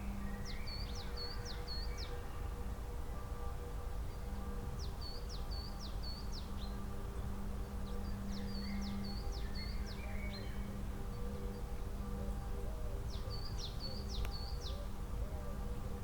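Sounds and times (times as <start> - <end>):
songbird chirping: 13.1 - 14.9.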